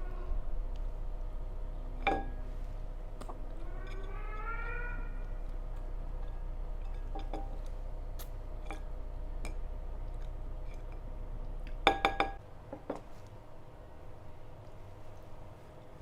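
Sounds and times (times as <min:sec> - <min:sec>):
low steady hum: 0:00.0 - 0:16.0
dishes and cutlery clinking: 0:02.0 - 0:02.4.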